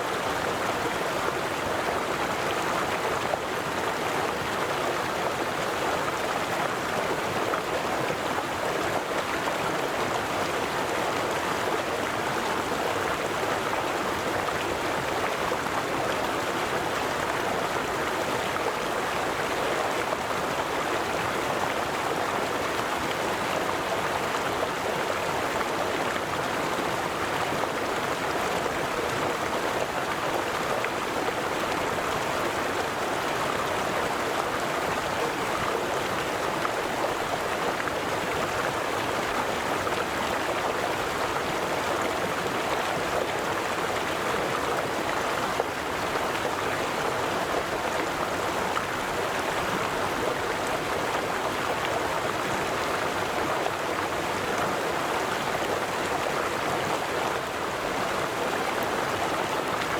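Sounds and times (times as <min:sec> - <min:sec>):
river water flowing and splashing: 0:00.0 - 0:59.9.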